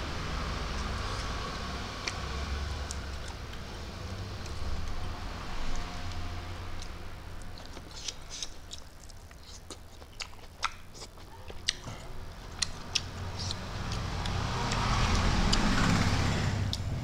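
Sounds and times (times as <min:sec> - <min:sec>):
chewing greens with mouth smacks: 0:06.8 - 0:15.8.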